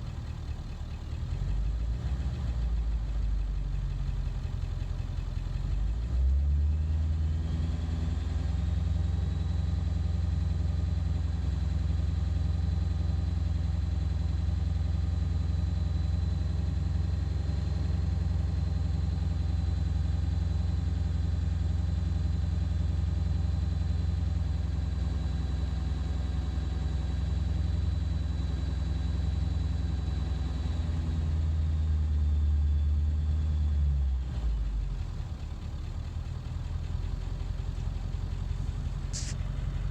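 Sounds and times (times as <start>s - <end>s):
diesel engine running rough: 0.0s - 39.9s
turbo whistle: 39.1s - 39.6s.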